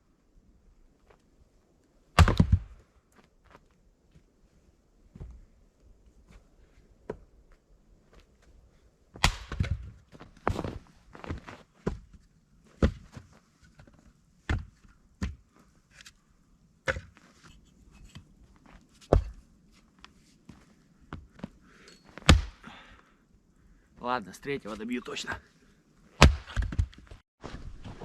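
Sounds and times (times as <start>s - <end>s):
chopping blows on wood: 9.2s - 9.8s, 22.2s - 22.6s, 26.2s - 26.9s.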